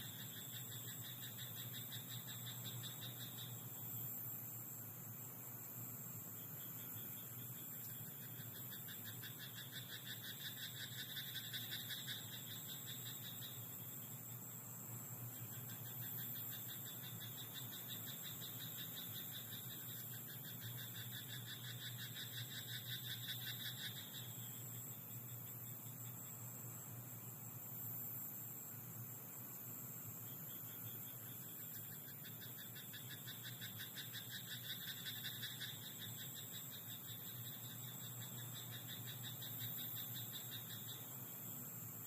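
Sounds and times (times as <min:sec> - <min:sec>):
frogs croaking in pulsed calls: 0:00.0 - 0:04.7, 0:06.3 - 0:26.5, 0:30.2 - 0:41.7
steady hiss: 0:00.0 - 0:42.0.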